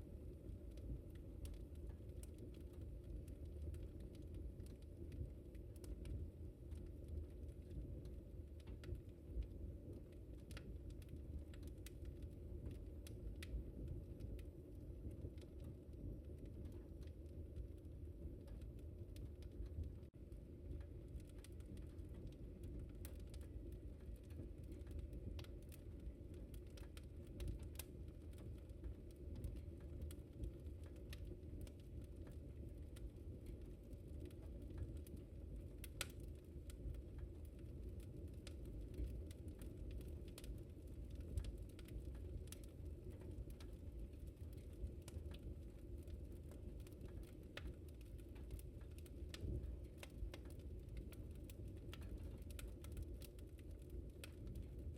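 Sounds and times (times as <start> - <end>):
fireplace flames rumbling: 0.0 - 54.9
wood fire pops and snaps: 0.8 - 54.9.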